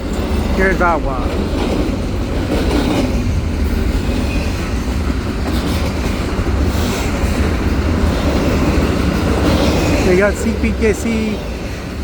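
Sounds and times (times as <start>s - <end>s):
freight train wheels clattering: 0.0s - 12.0s.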